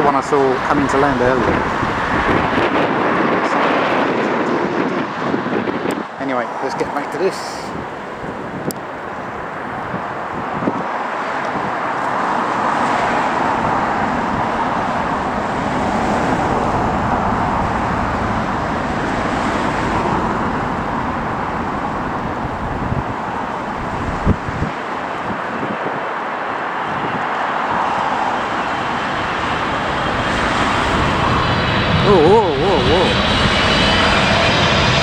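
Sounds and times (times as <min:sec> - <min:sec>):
engine roar: 0:00.0 - 0:04.0, 0:11.9 - 0:24.7, 0:27.9 - 0:35.0.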